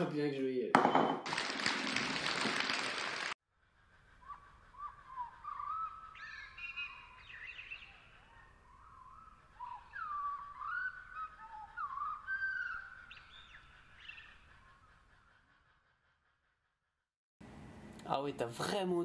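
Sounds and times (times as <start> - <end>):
faint bird chirps and calls: 3.8 - 16.6.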